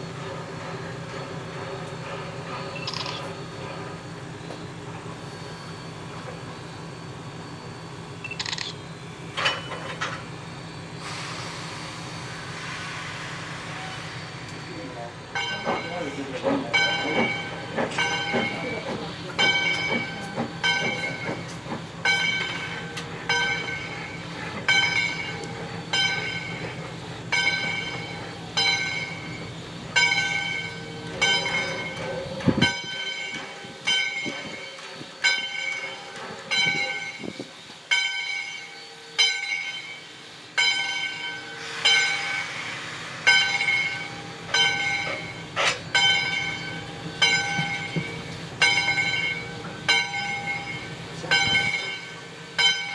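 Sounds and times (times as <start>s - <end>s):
train rolling rumble: 0.0s - 52.9s
locomotive bell ringing: 9.2s - 10.4s, 13.8s - 42.6s, 43.2s - 52.9s.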